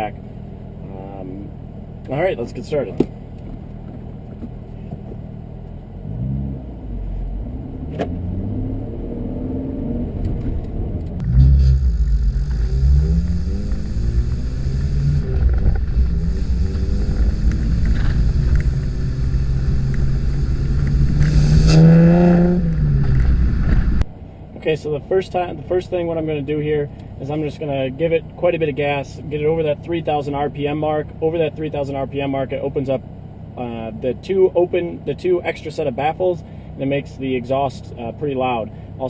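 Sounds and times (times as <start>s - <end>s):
car engine revving: 3.2s - 33.0s.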